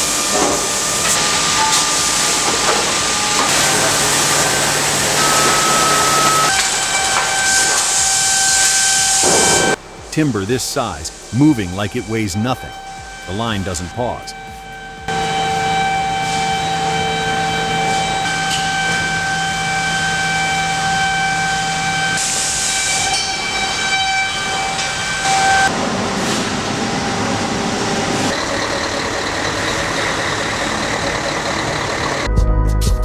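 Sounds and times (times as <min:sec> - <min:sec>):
rough low machinery noise: 0:00.0 - 0:23.9
machinery high whine: 0:00.0 - 0:32.3.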